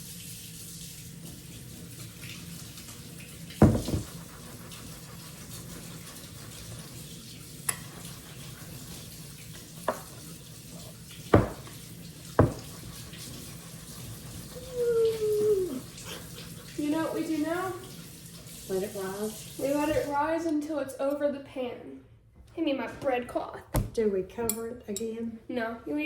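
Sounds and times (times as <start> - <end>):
tap running into sink: 3.5 - 4.3, 9.6 - 10.2, 11.1 - 13.3
dishes knocking against sink: 3.6 - 4.2, 11.3 - 11.8, 12.4 - 12.7.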